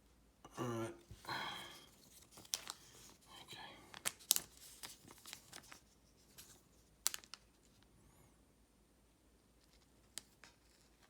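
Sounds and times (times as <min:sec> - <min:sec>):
trading cards clicking and rustling: 0:01.8 - 0:03.2, 0:03.9 - 0:07.5.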